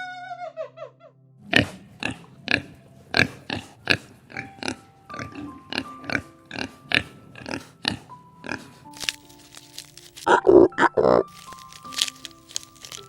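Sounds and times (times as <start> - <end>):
soft background music: 0.0 - 13.0
animal grunts: 1.4 - 9.1.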